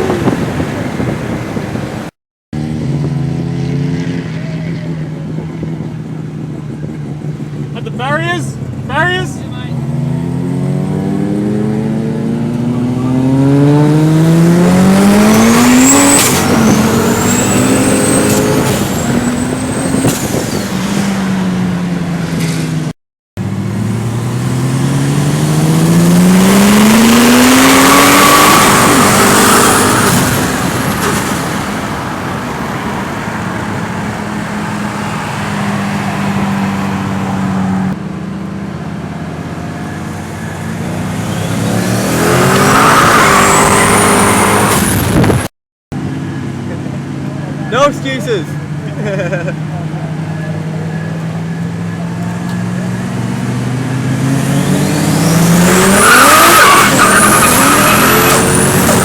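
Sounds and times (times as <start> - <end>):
car engine accelerating hard: 9.6 - 59.0
high squealing glides: 15.1 - 21.5, 39.7 - 45.4, 50.4 - 59.0.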